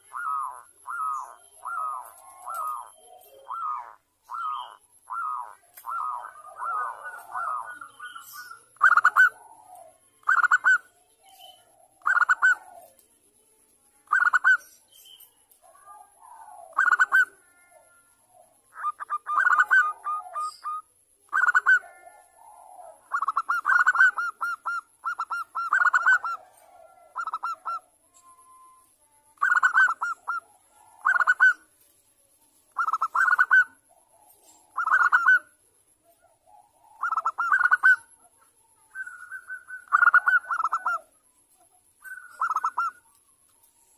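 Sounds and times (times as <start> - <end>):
dove cooing: 0.0 - 13.0, 14.0 - 14.7, 15.6 - 28.8, 29.4 - 31.7, 32.7 - 43.2
faint high-pitched tone: 27.9 - 29.9.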